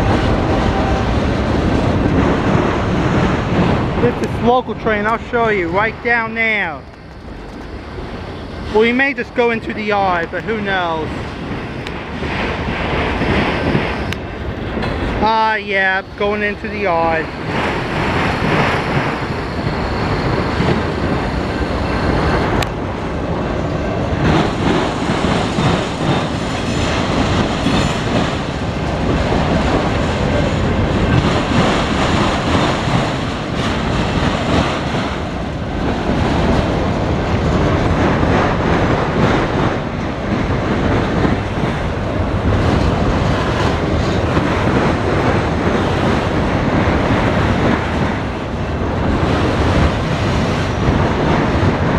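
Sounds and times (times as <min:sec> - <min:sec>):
train wheels clattering over rails: 0:00.0 - 0:51.9.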